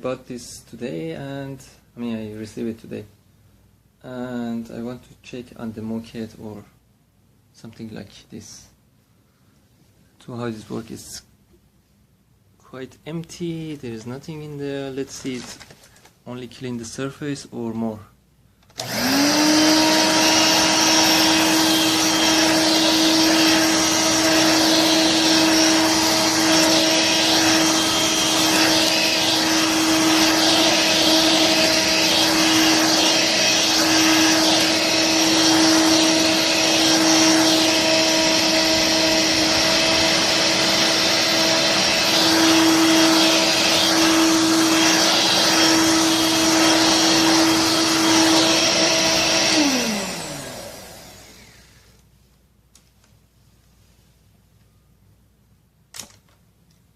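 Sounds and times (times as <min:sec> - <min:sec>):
vacuum cleaner motor whining: 0:18.7 - 0:52.0.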